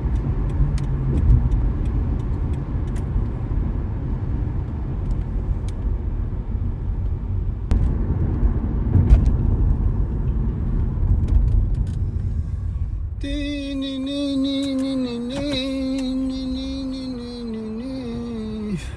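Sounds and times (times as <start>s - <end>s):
tyre and engine rumble: 0.0s - 18.9s
held musical tone: 13.2s - 18.9s.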